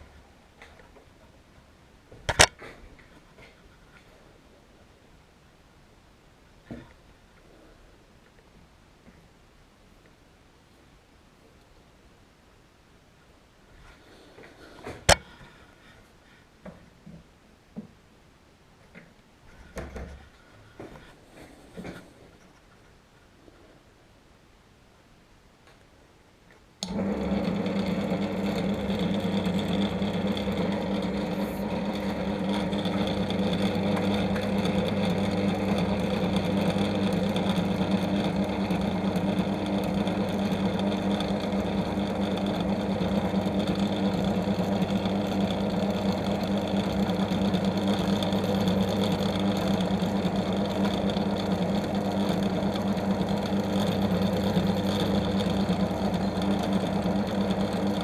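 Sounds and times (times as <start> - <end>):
electric machine tool motor humming: 26.8 - 58.0.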